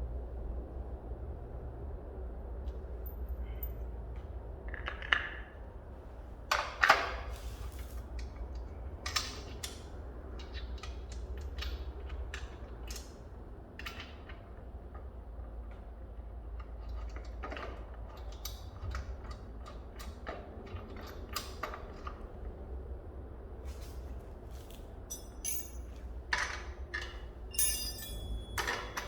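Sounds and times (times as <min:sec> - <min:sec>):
steady low hum: 0:23.3 - 0:29.0
objects clicking and rattling: 0:25.1 - 0:29.0.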